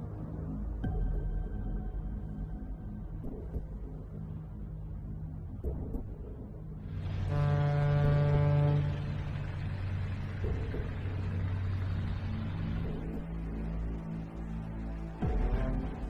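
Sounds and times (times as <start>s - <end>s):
low traffic hum: 2.0s - 16.0s
vehicle horn blast: 7.2s - 9.2s.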